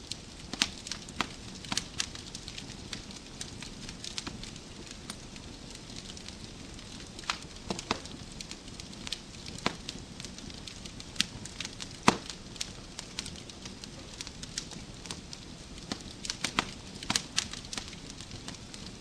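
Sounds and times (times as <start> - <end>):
wood fire crackling: 0.0 - 19.0
sharp pops and snaps of logs: 0.5 - 2.7, 7.2 - 8.5, 9.1 - 13.4, 15.8 - 18.9.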